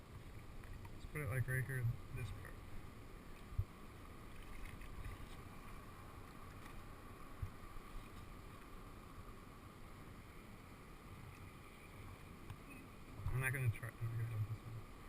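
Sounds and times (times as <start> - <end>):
wind rumble on microphone: 0.0 - 8.7.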